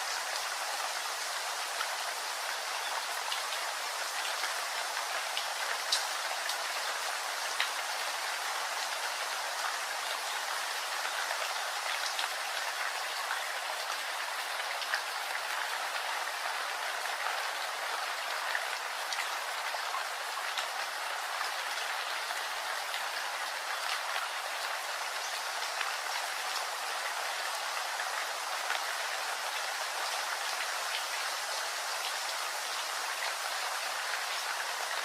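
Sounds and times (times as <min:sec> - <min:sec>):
steady rain: 0:00.0 - 0:35.0.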